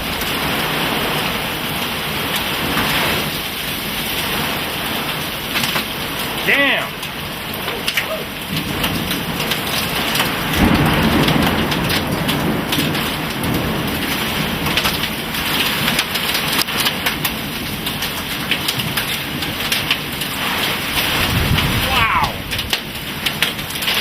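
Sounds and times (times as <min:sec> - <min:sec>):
heavy rain: 0:00.0 - 0:24.0
wind-driven noise: 0:20.5 - 0:23.0.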